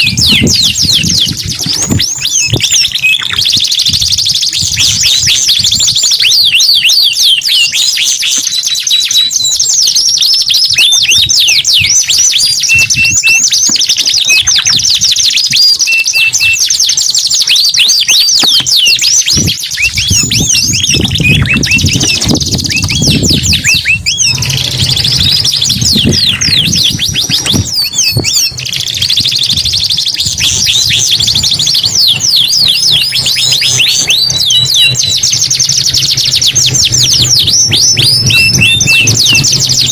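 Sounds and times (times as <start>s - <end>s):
canaries singing trills: 0.0s - 39.9s
low rumble: 20.0s - 28.9s.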